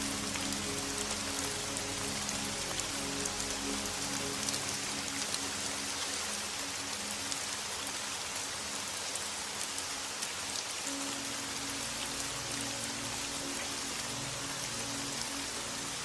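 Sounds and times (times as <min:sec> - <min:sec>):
rain falling on a surface: 0:00.0 - 0:16.0.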